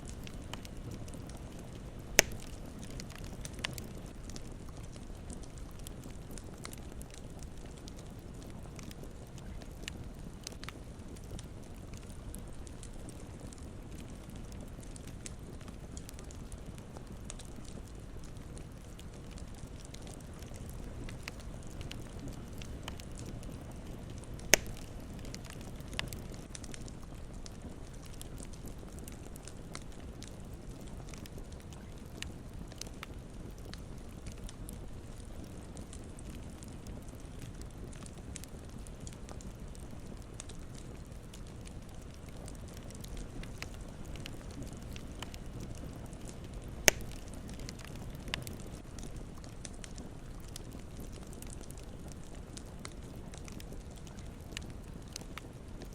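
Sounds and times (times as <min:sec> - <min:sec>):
burning wood popping: 0:00.0 - 0:55.9
campfire flames crackling: 0:00.0 - 0:55.9
loud sharp fire pop: 0:02.2 - 0:02.4, 0:24.6 - 0:24.8, 0:46.9 - 0:47.2.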